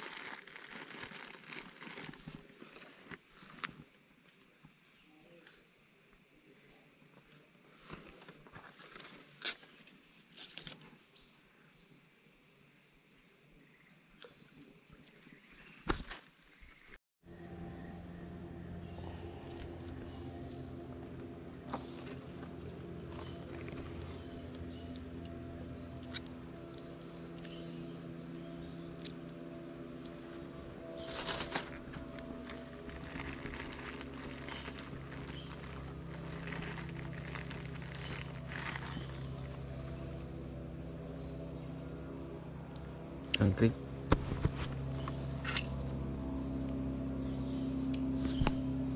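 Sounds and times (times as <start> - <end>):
insect chorus buzzing: 0.0 - 48.9
low steady hum: 17.2 - 48.9.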